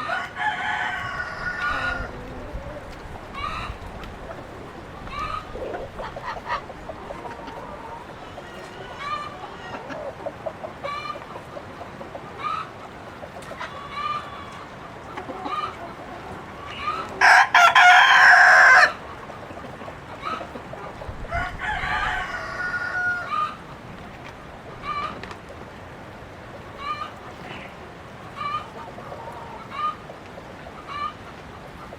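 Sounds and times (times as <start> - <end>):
rooster crowing: 0.0 - 3.5, 17.2 - 19.0, 21.3 - 23.6
chickens clucking: 0.0 - 31.9.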